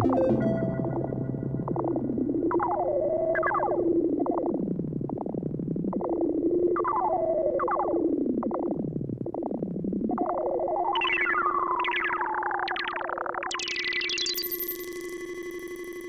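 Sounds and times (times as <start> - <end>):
held low synth note: 0.0 - 3.2
synthesizer downward sweeps: 0.0 - 3.6.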